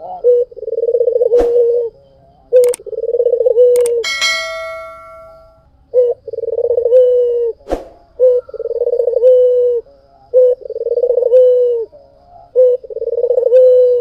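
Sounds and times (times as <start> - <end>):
dove cooing: 0.0 - 4.5, 5.9 - 7.6, 8.2 - 14.0
sharp click: 3.8 - 5.4.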